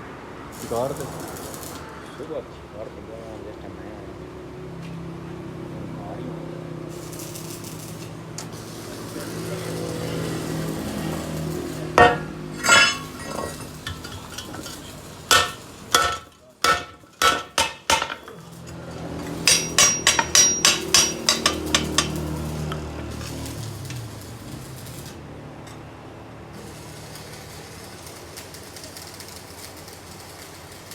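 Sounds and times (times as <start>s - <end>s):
hammer striking metal: 12.0s - 18.5s, 19.3s - 22.4s.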